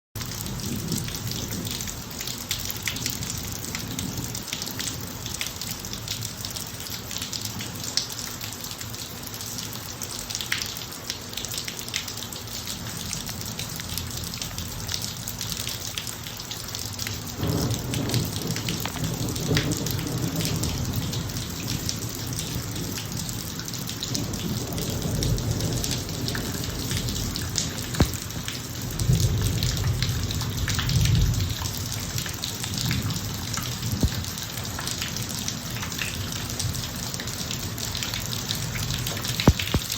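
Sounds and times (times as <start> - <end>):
rain pattering on driveway: 0.2 - 39.9
thunder rumbling: 17.4 - 23.0, 24.1 - 34.4.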